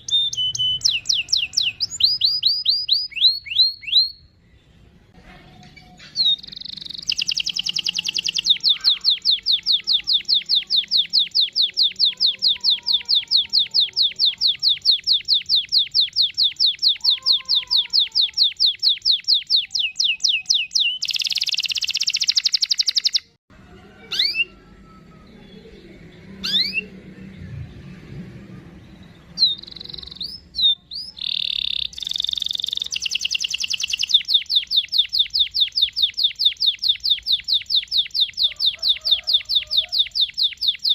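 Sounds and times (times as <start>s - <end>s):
canary trilling: 0.0s - 4.4s, 5.8s - 27.1s, 28.8s - 40.9s
canary chirps: 0.0s - 4.9s, 5.5s - 23.4s, 24.0s - 27.3s, 28.6s - 40.9s.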